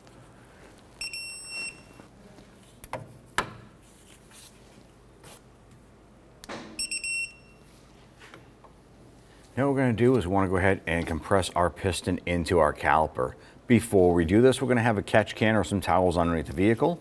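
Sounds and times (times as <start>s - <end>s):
torque wrench high beeps: 6.8s - 7.6s.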